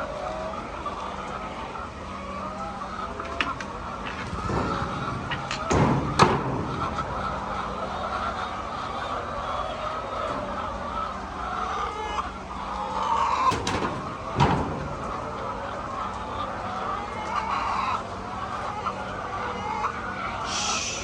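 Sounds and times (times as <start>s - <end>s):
chickens clucking: 0.0s - 21.0s
sharp knocks: 4.0s - 7.6s.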